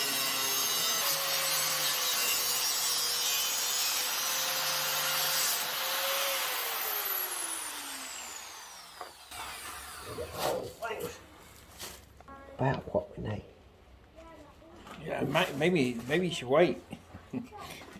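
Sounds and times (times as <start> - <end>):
electric power tool cutting: 0.0 - 10.7
power tool whine spinning down: 6.0 - 10.1.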